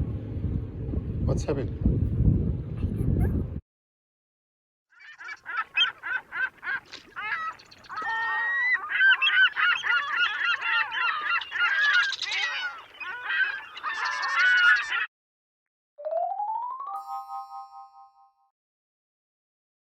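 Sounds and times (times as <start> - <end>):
flock of birds calling: 5.0 - 15.1.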